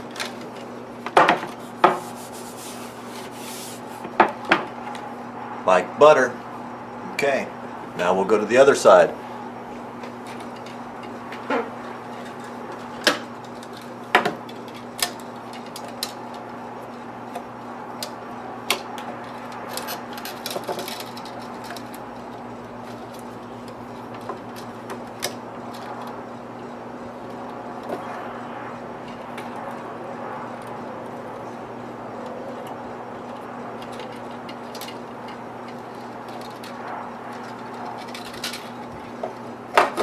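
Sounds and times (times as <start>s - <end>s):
low electrical hum: 0.0s - 40.0s.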